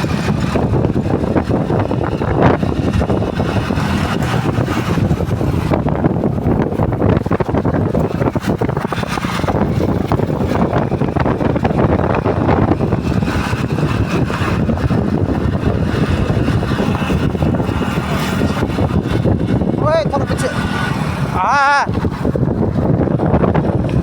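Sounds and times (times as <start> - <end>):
motorcycle engine running: 0.0 - 24.0
wind on microphone: 0.0 - 24.0.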